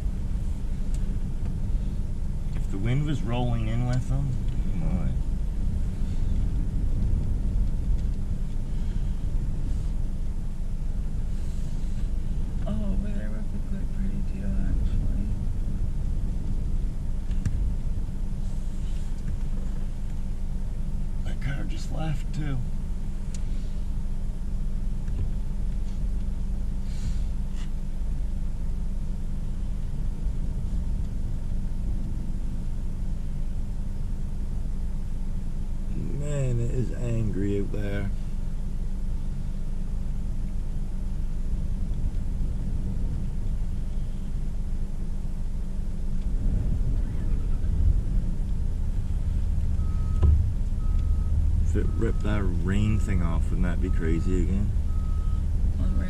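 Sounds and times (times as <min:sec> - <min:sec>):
low storm rumble in car: 0:00.0 - 0:56.0
storm wind: 0:04.4 - 0:11.4, 0:46.0 - 0:51.6
faint short hisses: 0:26.8 - 0:27.8
short beep: 0:49.8 - 0:53.2, 0:54.9 - 0:56.0.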